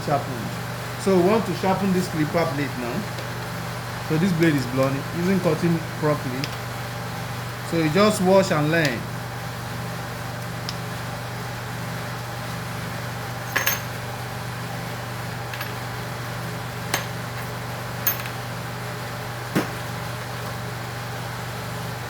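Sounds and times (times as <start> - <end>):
steady low hum: 0.0 - 22.0
small metal parts clinking: 13.5 - 13.9.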